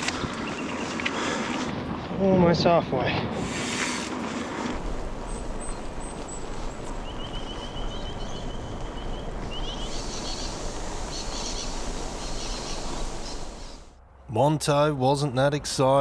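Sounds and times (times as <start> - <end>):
birds calling and trilling: 0.0 - 1.7, 4.7 - 14.0
wind noise: 0.0 - 14.0.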